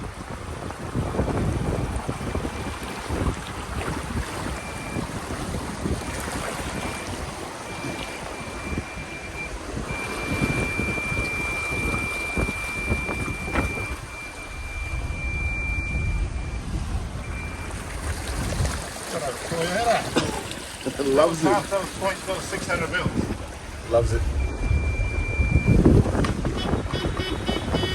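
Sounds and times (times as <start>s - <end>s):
water rushing and sloshing: 0.0s - 27.9s
electronic warning beep: 4.4s - 5.2s, 5.8s - 17.8s, 24.2s - 27.9s
low rumble: 12.6s - 18.4s, 23.1s - 26.9s.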